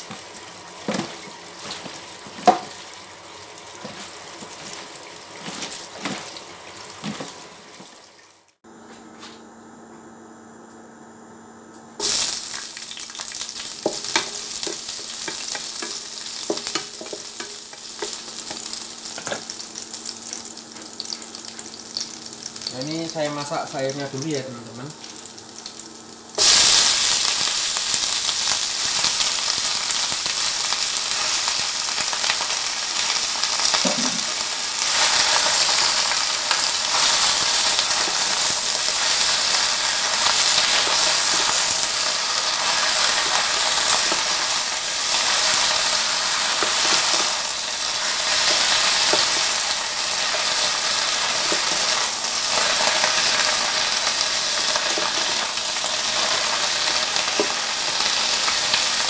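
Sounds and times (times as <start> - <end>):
greens sizzling in hot oil: 0.0 - 8.6, 12.0 - 59.0
wooden spatula stirring in pan: 3.8 - 8.0, 13.1 - 19.6.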